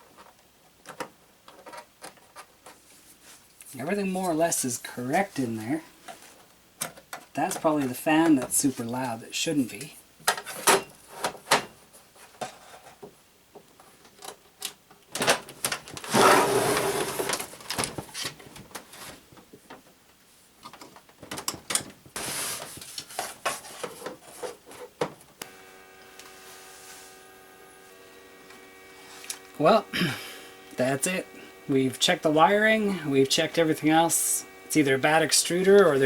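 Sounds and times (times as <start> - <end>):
steady machine hum: 25.4 - 36.0.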